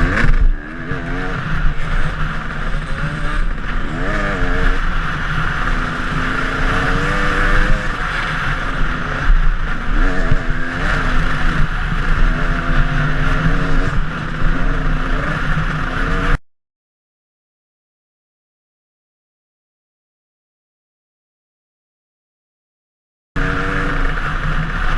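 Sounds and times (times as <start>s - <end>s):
dirt bike engine revving: 0.0s - 16.4s, 23.4s - 24.9s
wind noise: 0.0s - 16.4s.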